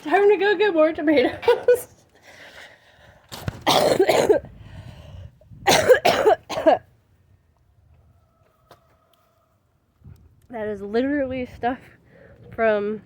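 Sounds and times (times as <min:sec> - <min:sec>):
person coughing: 0:03.7 - 0:04.5, 0:05.7 - 0:06.8.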